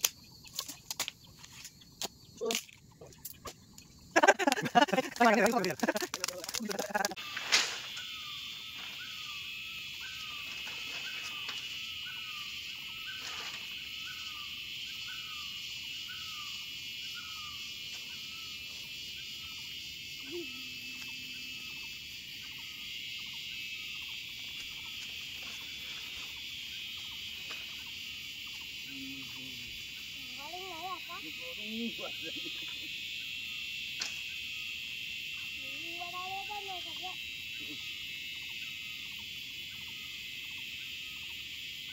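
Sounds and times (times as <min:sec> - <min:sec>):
insect chorus: 0:00.0 - 0:41.9
sliding bird calls: 0:06.4 - 0:14.5.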